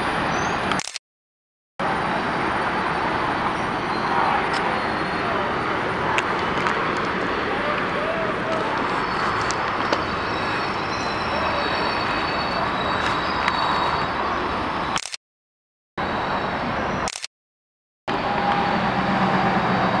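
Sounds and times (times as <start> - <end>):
train cars rumbling on track: 1.8 - 15.0, 18.1 - 20.0.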